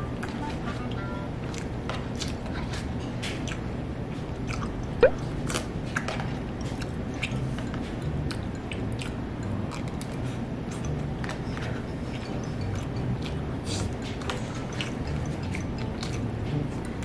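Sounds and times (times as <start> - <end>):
low steady hum: 0.0 - 17.0
chewing and mouth sounds: 0.1 - 17.0.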